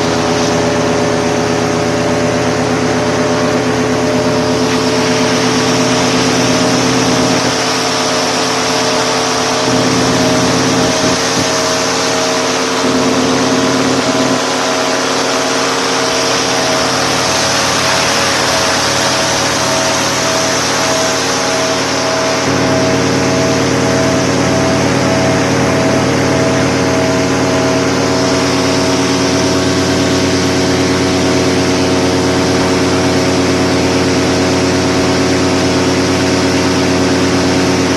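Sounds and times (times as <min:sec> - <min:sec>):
engine running steadily: 0:00.0 - 0:37.9
pulsing tone: 0:00.0 - 0:37.9.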